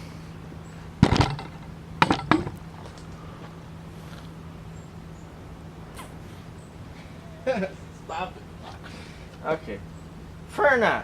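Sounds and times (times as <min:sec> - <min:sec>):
steady low hum: 0:00.0 - 0:11.0
hard objects clunking: 0:01.0 - 0:03.1.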